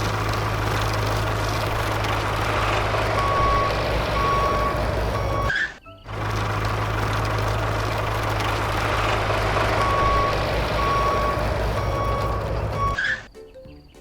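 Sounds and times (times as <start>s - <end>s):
truck engine running: 0.0s - 13.3s
reversing beeper: 2.6s - 5.6s, 8.9s - 13.3s.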